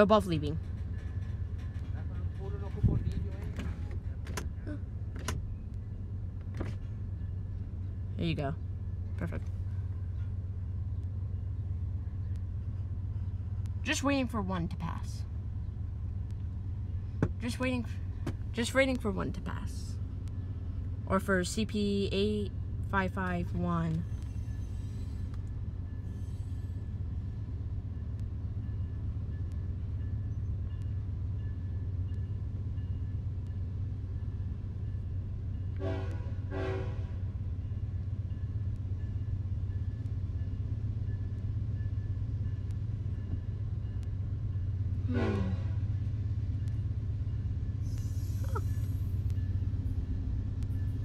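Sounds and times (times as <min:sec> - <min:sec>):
diesel locomotive rumbling: 0:00.0 - 0:51.0
locomotive horn blasts: 0:35.8 - 0:37.3, 0:45.0 - 0:45.9.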